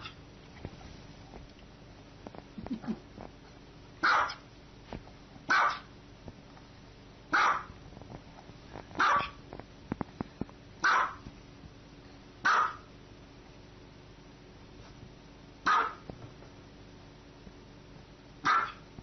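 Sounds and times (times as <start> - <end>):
small dog barking: 4.0 - 4.4, 5.5 - 5.9, 7.3 - 7.8, 9.0 - 9.4, 10.8 - 11.2, 12.4 - 12.9, 15.6 - 16.1, 18.4 - 18.9.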